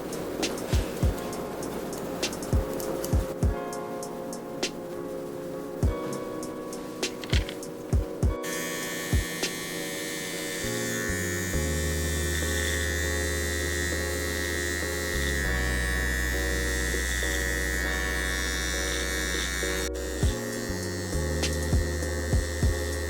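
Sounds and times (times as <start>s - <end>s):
background music with bass line: 2.2s - 3.8s, 5.8s - 6.2s, 7.0s - 8.5s, 10.6s - 23.0s
electric hair clipper buzzing: 8.3s - 23.0s.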